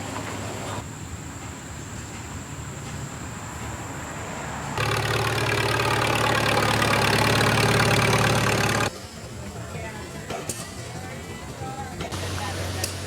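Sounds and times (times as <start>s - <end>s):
engine running low: 4.7s - 13.0s
buzzy engine running: 4.8s - 8.9s.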